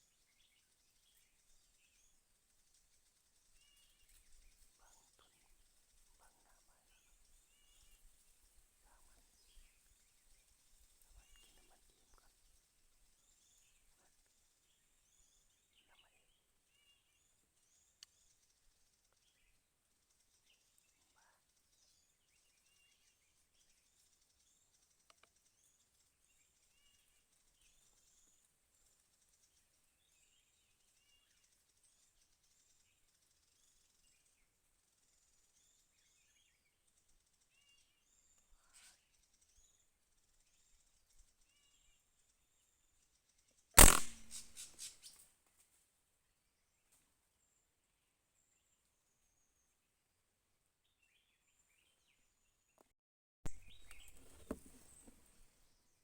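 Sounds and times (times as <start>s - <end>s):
small birds chirping: 0.0s - 45.4s, 46.4s - 52.9s, 53.5s - 56.0s
gunshot: 43.8s - 44.6s.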